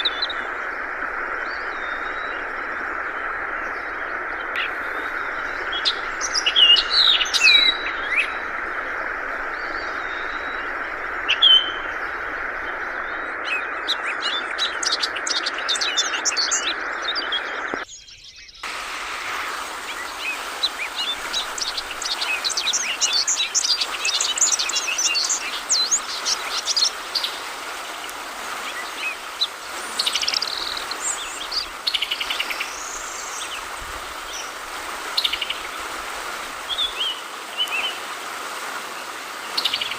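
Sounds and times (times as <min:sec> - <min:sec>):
flowing water: 0:00.0 - 0:17.8, 0:18.6 - 0:39.9
bird chirping and trilling: 0:19.3 - 0:27.6.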